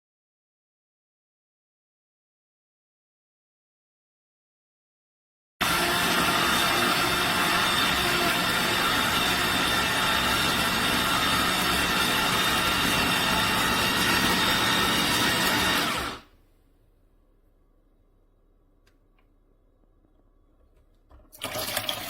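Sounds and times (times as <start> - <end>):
electric juicer motor whining: 5.6 - 16.3.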